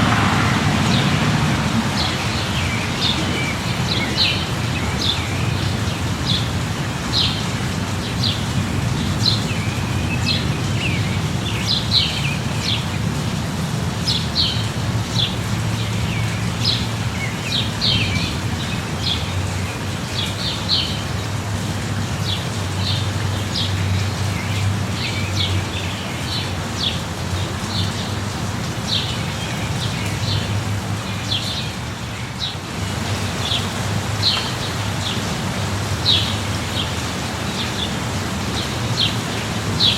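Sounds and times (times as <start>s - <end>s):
birds chirping: 0.0s - 13.2s, 22.0s - 39.9s
light rain: 0.0s - 39.9s.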